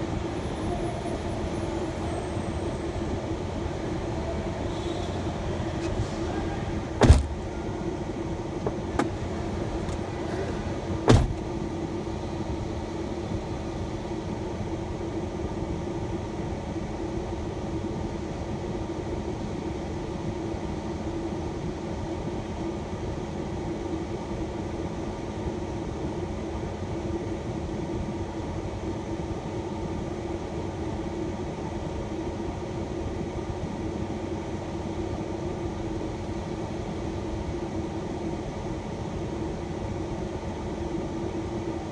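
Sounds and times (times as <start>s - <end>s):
road noise: 0.0s - 14.2s
van engine rumble: 0.0s - 14.4s.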